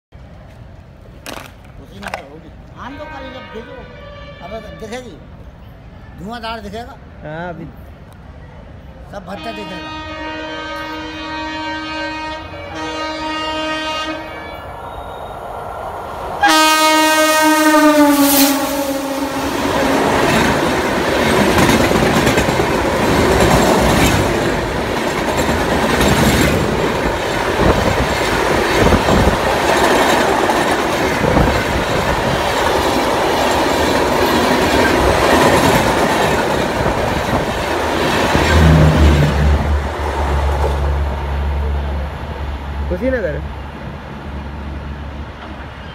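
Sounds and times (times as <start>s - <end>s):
train horn blasts: 2.9s - 5.0s, 9.4s - 15.4s, 16.4s - 20.3s
train wheels clattering: 19.5s - 39.3s.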